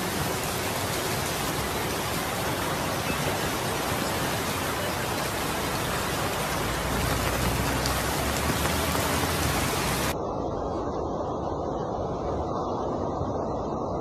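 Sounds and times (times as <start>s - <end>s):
floodwater rushing: 0.0s - 10.2s
heavy rain pouring: 0.0s - 10.2s.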